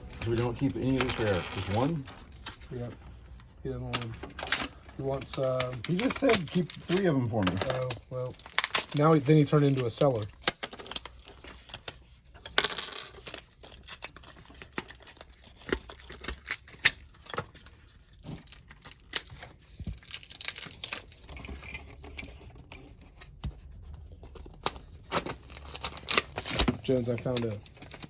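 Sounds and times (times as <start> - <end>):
objects clicking and knocking: 0.0 - 2.6, 10.0 - 11.7.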